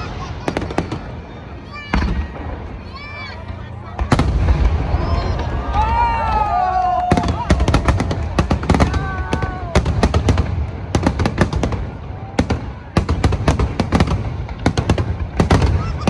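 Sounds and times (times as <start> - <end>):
fireworks bangs: 0.0 - 16.0
fireworks whistling: 0.0 - 16.0.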